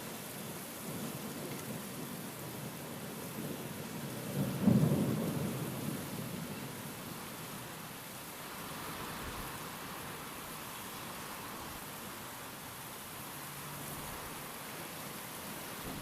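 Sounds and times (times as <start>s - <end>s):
steady rain: 0.0s - 16.0s
thunder rumble: 15.8s - 16.0s.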